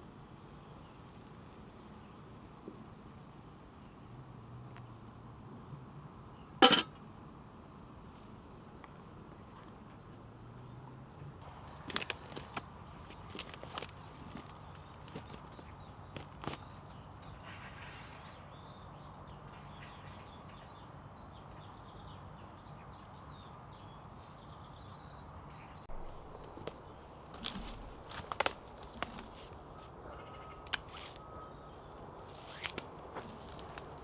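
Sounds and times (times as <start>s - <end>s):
background hiss: 0.0s - 19.7s
birds chirping: 12.4s - 34.0s.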